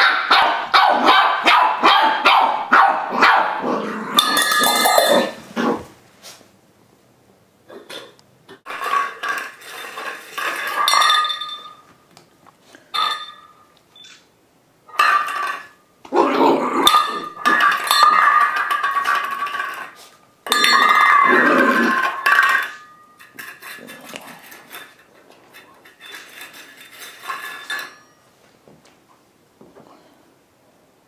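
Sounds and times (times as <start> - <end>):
puppy barking: 0.0 - 3.6
food bowl scraping and clattering: 4.1 - 5.9, 7.9 - 11.8, 14.9 - 15.8, 16.8 - 28.2.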